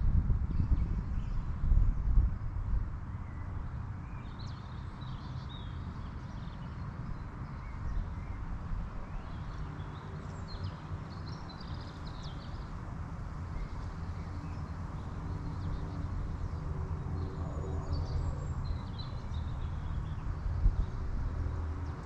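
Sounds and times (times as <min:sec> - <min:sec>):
small songbirds chirping: 0:00.4 - 0:22.0.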